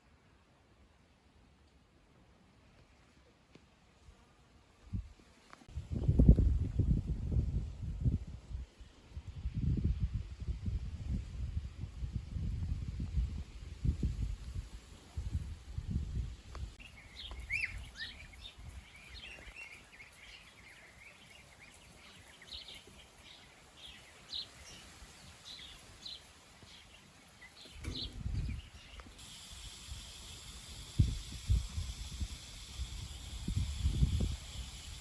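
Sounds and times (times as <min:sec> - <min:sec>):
wind rumbling on microphone: 0:04.8 - 0:35.0
steady high hiss: 0:13.9 - 0:35.0
small birds chirping: 0:16.7 - 0:31.2.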